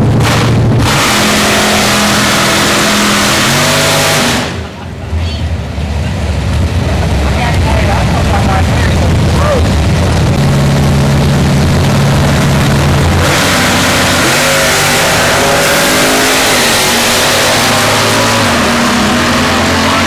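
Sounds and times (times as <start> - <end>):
car accelerating away: 0.0 - 4.9, 6.0 - 20.0
drag race car engines: 0.0 - 20.0.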